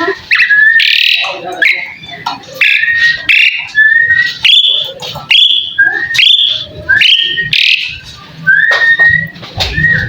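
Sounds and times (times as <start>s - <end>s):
starling whistled notes: 0.3s - 10.0s.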